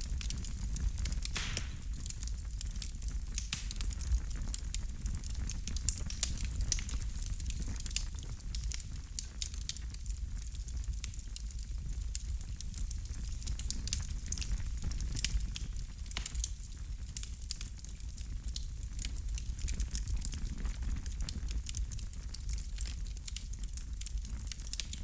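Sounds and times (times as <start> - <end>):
wood fire crackling: 0.0 - 25.0
fire hissing: 1.0 - 2.2.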